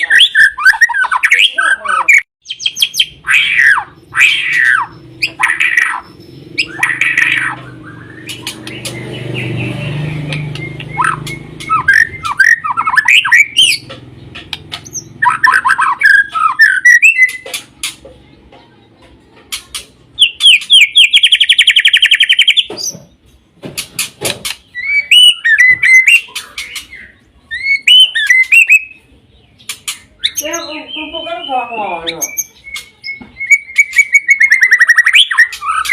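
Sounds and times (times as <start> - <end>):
bird fast trill: 0.0 - 13.9, 14.5 - 18.0, 19.7 - 22.9, 24.0 - 35.9
sharp clicks: 6.6 - 9.2, 10.2 - 15.6
bird singing whistled phrases: 6.6 - 13.8, 15.0 - 17.4, 24.7 - 29.1, 30.2 - 35.9.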